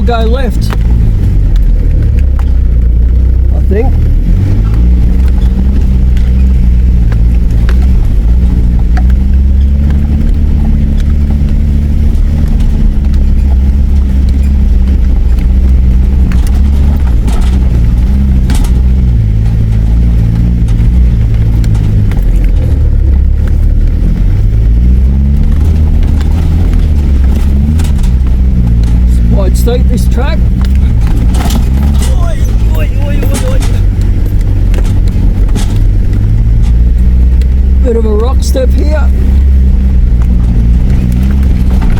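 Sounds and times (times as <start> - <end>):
clicks and knocks from rough track: 0.0 - 41.9
vehicle engine from inside cab: 0.0 - 41.9.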